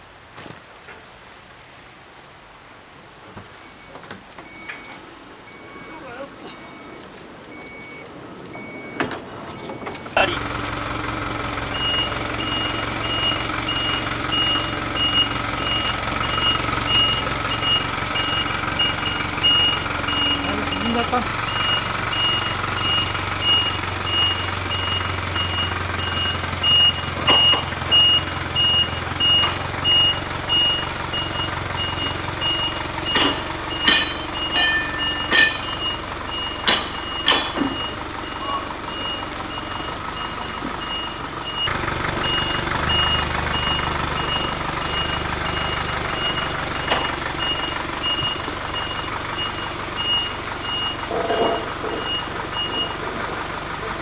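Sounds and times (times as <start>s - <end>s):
reversing alarm beeping: 3.6s - 53.6s
low running engine: 8.6s - 54.0s
sharp knocks: 36.6s - 37.8s.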